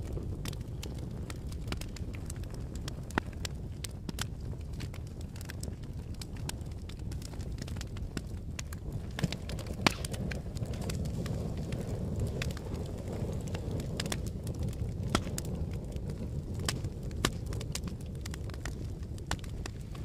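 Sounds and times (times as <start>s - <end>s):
fire crackling: 0.0s - 20.0s.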